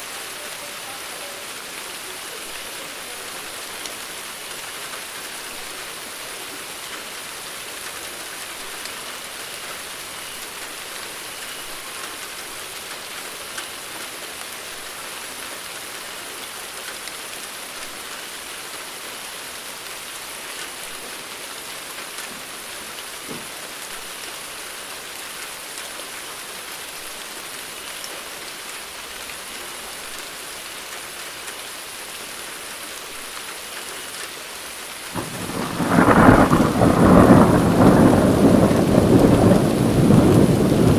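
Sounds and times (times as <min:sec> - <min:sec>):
steady rainfall hiss: 0:00.0 - 0:40.9
raindrops pattering: 0:35.0 - 0:40.9
thunder rumbling: 0:35.2 - 0:40.9.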